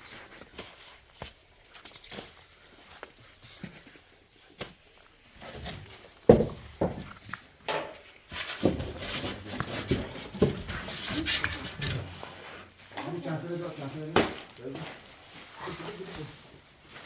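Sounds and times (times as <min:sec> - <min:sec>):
knocks and clatter of objects: 0:04.6 - 0:12.2, 0:14.0 - 0:15.1.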